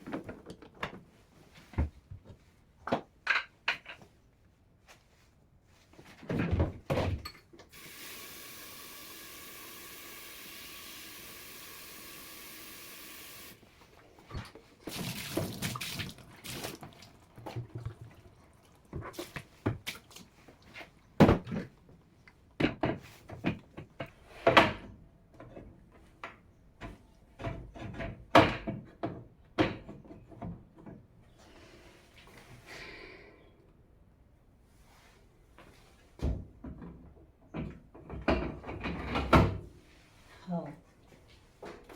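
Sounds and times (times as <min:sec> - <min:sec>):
tap water running: 0:07.7 - 0:13.6, 0:14.4 - 0:20.8
hard objects knocking and clattering: 0:14.9 - 0:19.8.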